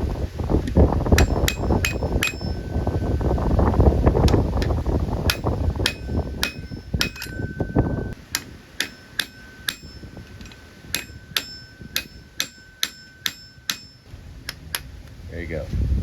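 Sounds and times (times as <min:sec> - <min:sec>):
low rumble: 0:00.0 - 0:08.2, 0:14.1 - 0:16.0
hammer tapping on metal nut: 0:01.2 - 0:02.7, 0:04.3 - 0:14.1.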